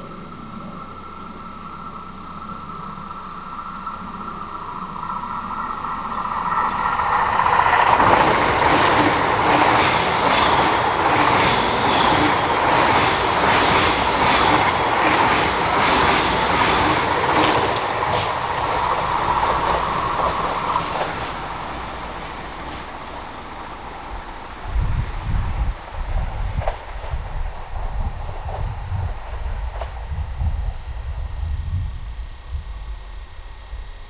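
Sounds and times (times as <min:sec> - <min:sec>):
electric train whine: 0:00.0 - 0:34.0
train wheels clattering on rails: 0:02.7 - 0:30.9.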